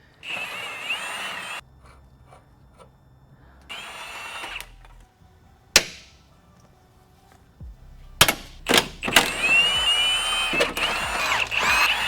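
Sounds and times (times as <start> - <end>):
power tool whining: 0.0 - 2.9, 3.7 - 5.2, 7.6 - 12.0.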